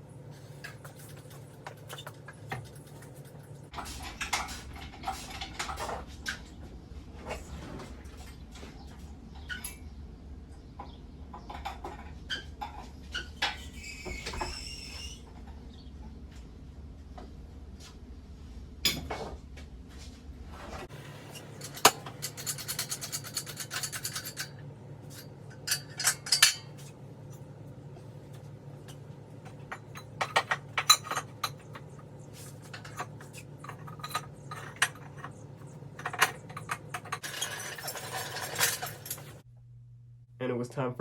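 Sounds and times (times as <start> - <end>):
steady low hum: 15.1 - 37.3, 38.0 - 41.0
metal tools clinking: 21.3 - 27.4, 28.9 - 39.4.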